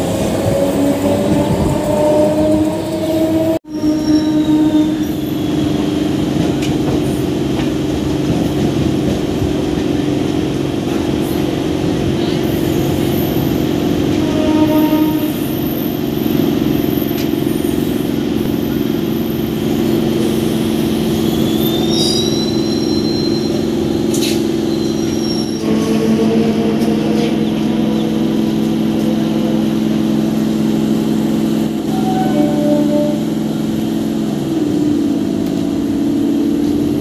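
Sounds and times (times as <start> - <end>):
train wheels rumbling on track: 0.0 - 37.0
high wheel squeal: 0.7 - 6.1, 14.5 - 28.5.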